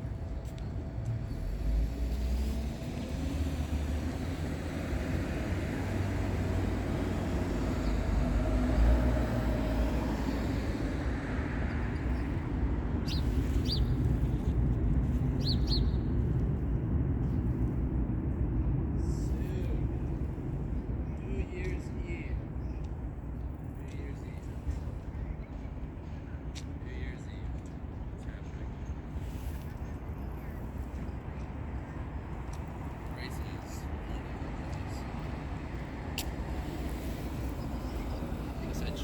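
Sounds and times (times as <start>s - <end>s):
cars passing: 0.0s - 39.0s
road traffic rumble: 0.0s - 39.0s
short high bird chirps: 15.4s - 16.1s.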